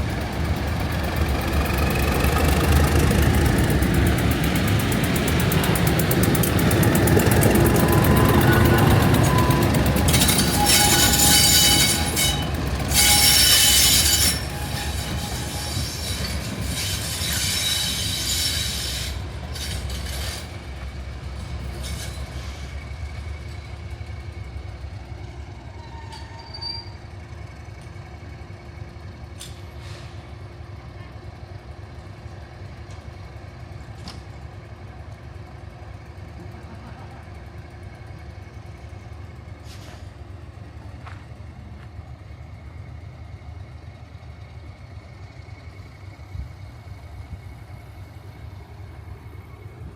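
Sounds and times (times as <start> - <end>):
rail squealing: 0.0 - 31.4, 36.2 - 49.9
diesel train running: 0.0 - 49.9.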